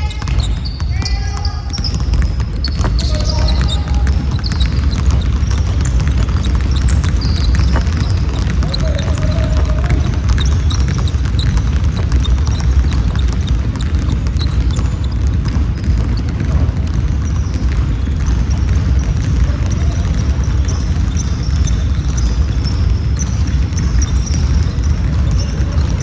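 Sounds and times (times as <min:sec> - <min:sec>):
basketball bouncing: 0:00.0 - 0:26.0
shoe squeaks on gym floor: 0:00.0 - 0:26.0.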